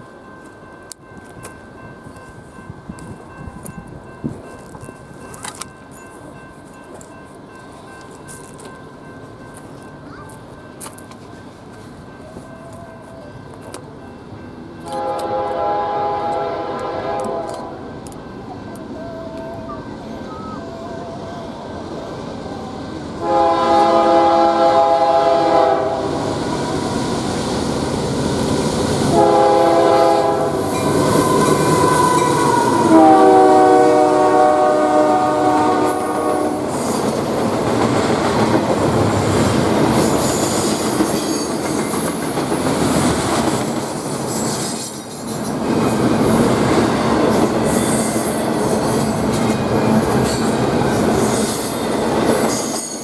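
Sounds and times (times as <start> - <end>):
train rumbling past: 0.0 - 53.0
train air horn blasts: 14.8 - 17.9, 23.2 - 27.0, 29.0 - 37.0.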